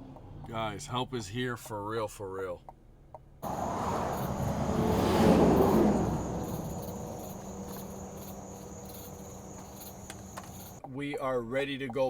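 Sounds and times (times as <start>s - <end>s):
night insects trilling: 3.4s - 10.8s
vehicle passing at speed: 3.4s - 10.8s.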